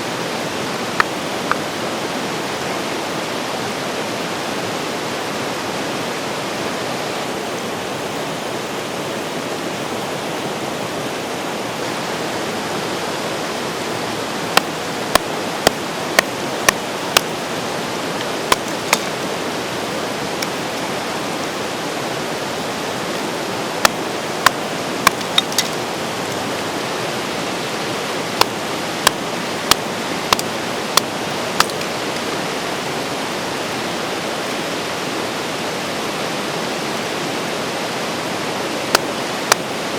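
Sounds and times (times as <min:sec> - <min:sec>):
river flowing: 0:00.0 - 0:39.9
sharp knocks: 0:23.8 - 0:25.8.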